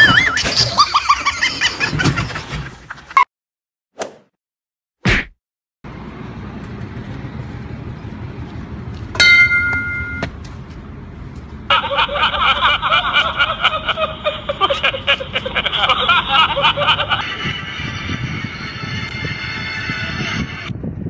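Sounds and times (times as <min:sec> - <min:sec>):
roadside traffic: 0:05.8 - 0:21.0
high-pitched tone: 0:09.2 - 0:10.3.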